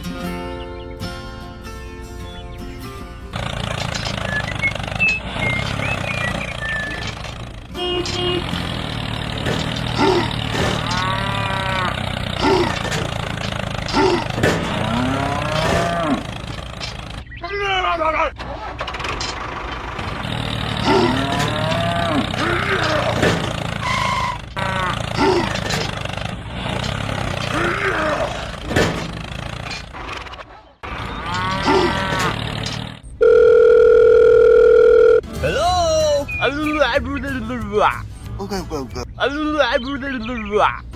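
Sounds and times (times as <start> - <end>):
low engine hum: 3.2 - 17.3
cattle mooing: 9.9 - 13.0, 13.9 - 16.6, 20.7 - 25.6, 31.0 - 32.4.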